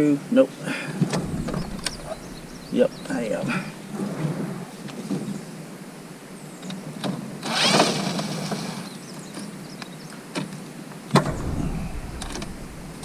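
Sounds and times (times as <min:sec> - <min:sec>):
sharp knock: 0:01.1 - 0:03.9, 0:11.2 - 0:13.0.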